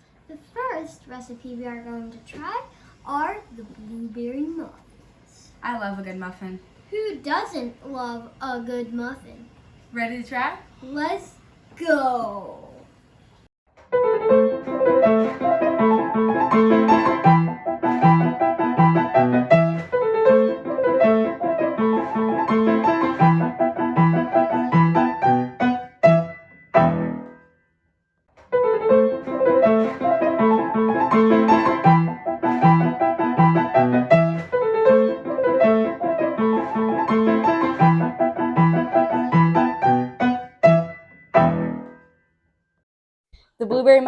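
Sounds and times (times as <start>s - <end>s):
piano music: 13.9s - 27.4s, 28.5s - 42.0s.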